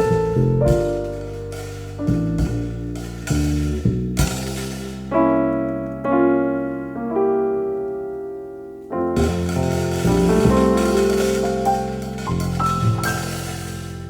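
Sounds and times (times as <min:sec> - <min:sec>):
drums and cymbals: 0:00.0 - 0:05.1, 0:09.2 - 0:14.0
bass notes: 0:00.0 - 0:14.0
jazz trio playing: 0:00.0 - 0:14.0
keyboard chords: 0:04.2 - 0:14.0.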